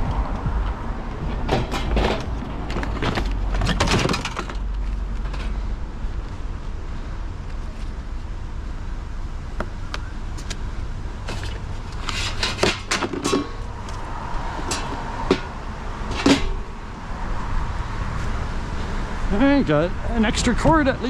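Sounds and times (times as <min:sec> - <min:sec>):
low steady rumble: 0:00.0 - 0:21.0
clicks and clanks of metal: 0:12.0 - 0:13.6, 0:14.6 - 0:15.5, 0:16.1 - 0:16.6.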